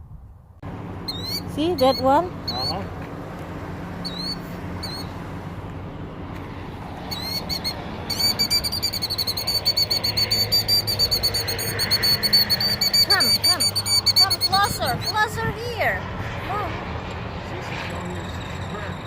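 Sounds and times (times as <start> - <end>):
killdeer calling: 1.0 - 2.9, 4.0 - 5.2, 7.0 - 15.4.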